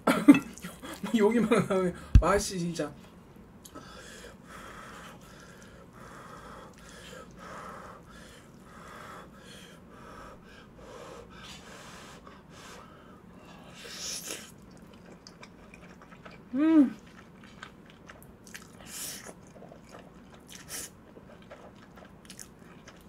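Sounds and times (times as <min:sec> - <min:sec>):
person breathing: 0:03.7 - 0:14.0
wet chewing of sticky noodles: 0:04.9 - 0:09.4, 0:12.1 - 0:23.0.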